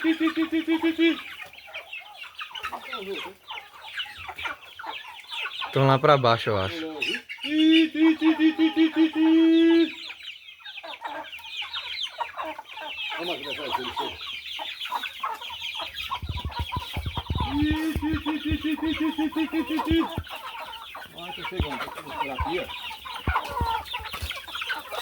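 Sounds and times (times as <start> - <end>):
chickens clucking and chirping: 0.0 - 25.0
fast run of repeated calls: 16.0 - 20.4.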